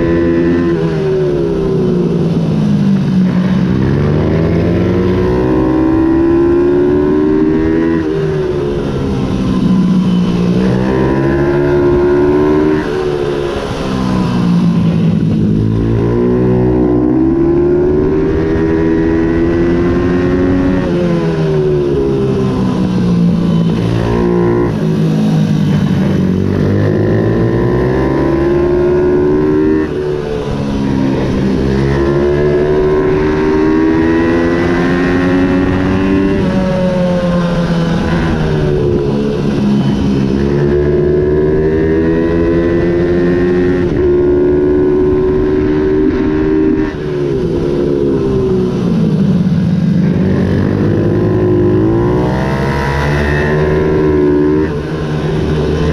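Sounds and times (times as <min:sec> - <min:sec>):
minibike engine racing: 0:00.0 - 0:55.9.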